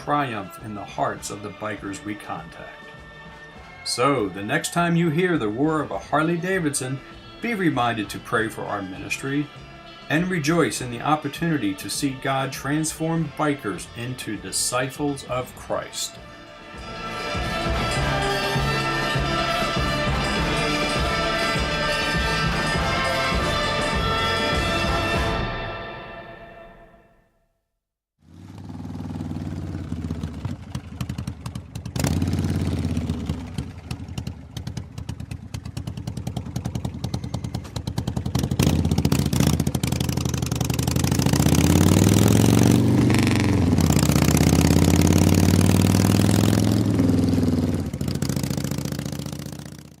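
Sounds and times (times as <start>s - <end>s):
motorcycle engine revving: 28.2s - 50.0s.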